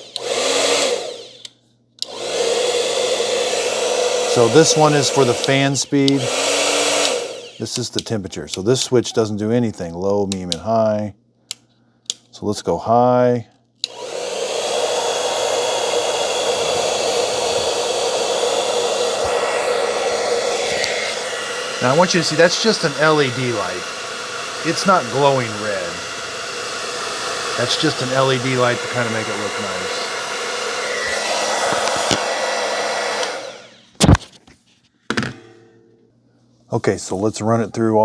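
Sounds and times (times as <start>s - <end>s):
hair dryer blowing air: 0.0s - 8.7s, 13.8s - 34.2s.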